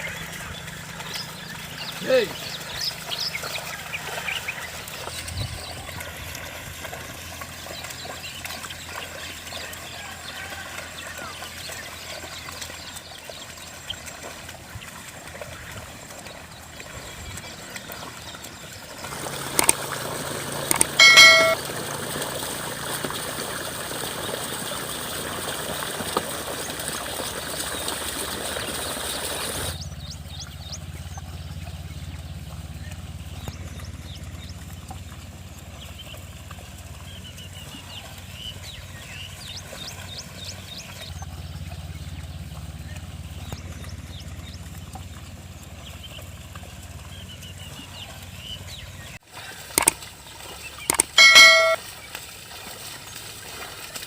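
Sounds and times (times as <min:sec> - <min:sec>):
water trickling and splashing: 0:00.0 - 0:54.0
short pitched call: 0:21.0 - 0:21.6, 0:51.2 - 0:51.8.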